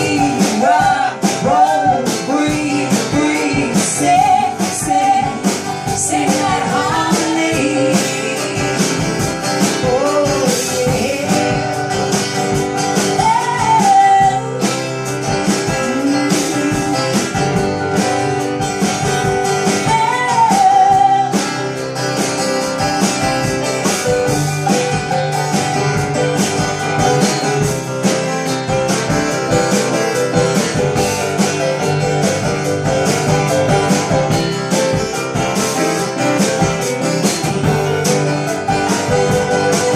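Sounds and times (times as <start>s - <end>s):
acoustic guitar accompaniment: 0.0s - 39.9s.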